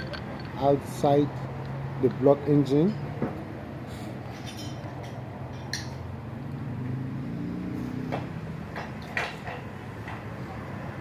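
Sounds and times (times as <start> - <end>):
metal engine parts clicking: 0.0 - 0.8.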